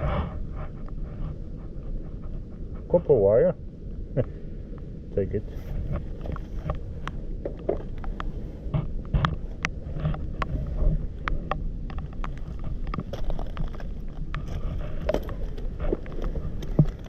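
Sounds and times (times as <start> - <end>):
steady low rumble: 0.0 - 17.0
pebbles and gravel clicking: 9.4 - 17.0.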